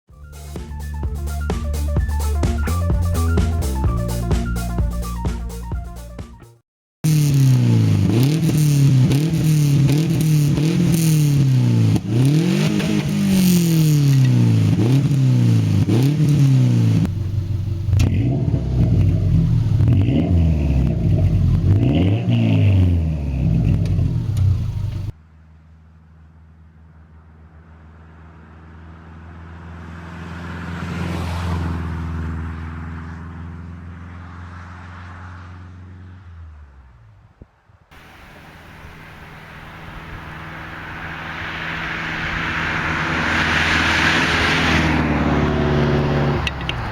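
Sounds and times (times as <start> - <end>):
car engine revving: 7.0 - 25.1, 37.9 - 46.9
steady engine drone: 38.0 - 46.9.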